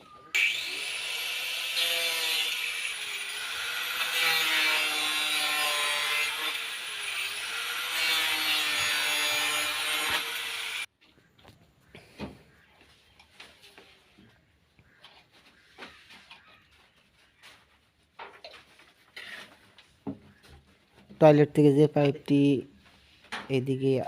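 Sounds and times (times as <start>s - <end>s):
saw cutting drain pipe: 0.4s - 10.9s.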